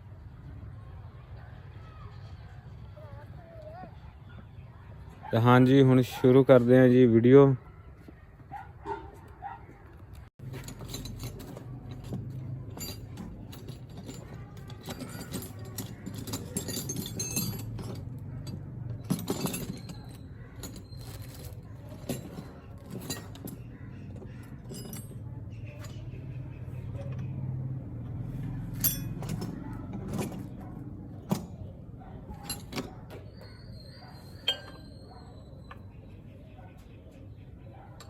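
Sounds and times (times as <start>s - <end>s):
metallic tool clinks and knocks: 10.4s - 26.2s, 28.7s - 31.6s, 32.3s - 35.2s.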